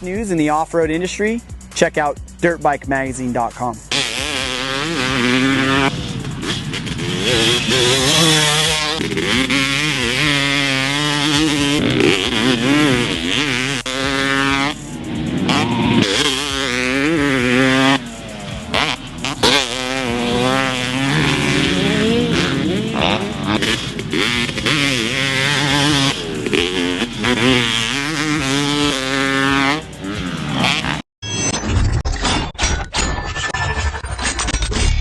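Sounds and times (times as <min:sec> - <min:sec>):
dirt bike engine revving: 0:03.8 - 0:31.0.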